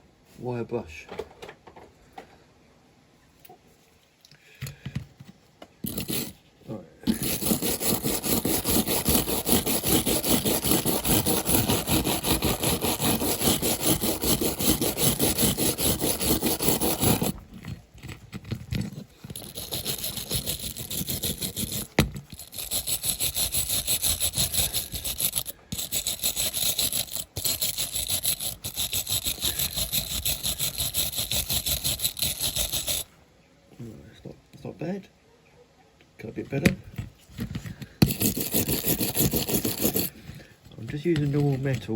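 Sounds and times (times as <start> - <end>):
wire brush scrubbing metal: 5.9 - 6.4, 7.1 - 33.1, 38.0 - 40.2.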